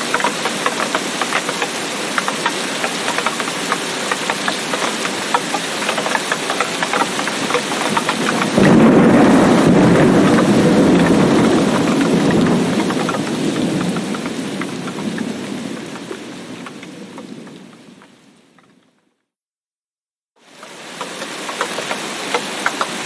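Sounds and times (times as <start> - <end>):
heavy rain falling: 0.0 - 19.0, 20.4 - 23.0
thunder rumbling: 7.0 - 18.8.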